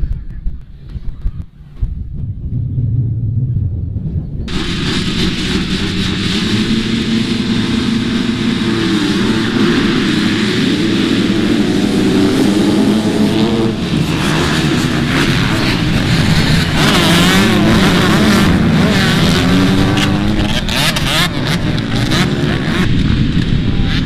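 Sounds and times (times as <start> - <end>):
dirt bike engines revving: 0.8 - 24.0.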